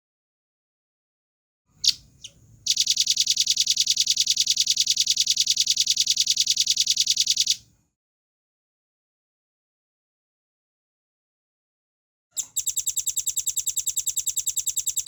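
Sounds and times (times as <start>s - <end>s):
high-pitched bird trill: 1.8s - 7.6s, 12.4s - 15.0s.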